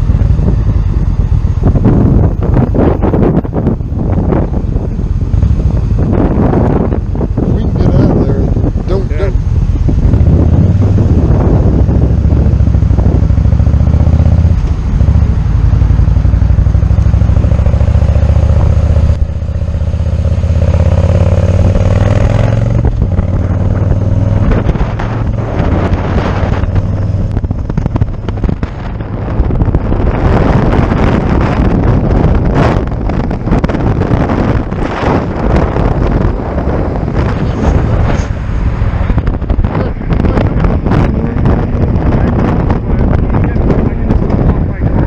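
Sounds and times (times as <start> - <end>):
motorcycle engine running: 0.0 - 45.0
wind buffeting microphone: 0.0 - 45.0.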